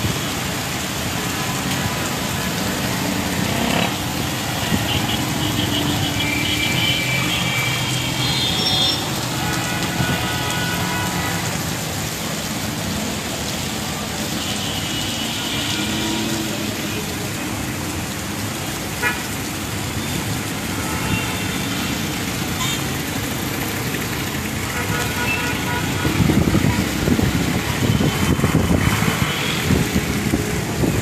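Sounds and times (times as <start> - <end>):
heavy rain: 0.0 - 31.0
road traffic noise: 0.0 - 31.0
vehicle horns: 4.6 - 11.5, 24.7 - 26.8.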